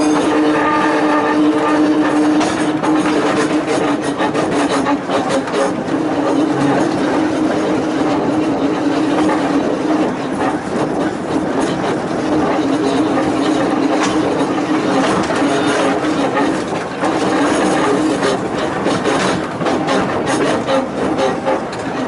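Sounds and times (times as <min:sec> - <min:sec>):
electric railway car humming: 0:00.0 - 0:22.0
wheels clicking over rails: 0:00.0 - 0:22.0.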